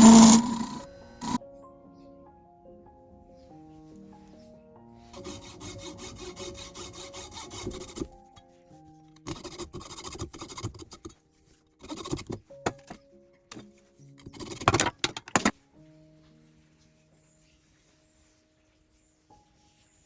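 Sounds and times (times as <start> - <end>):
tool rasping wood: 0.0 - 1.4, 5.1 - 8.2, 9.3 - 11.2
background music: 0.0 - 20.0.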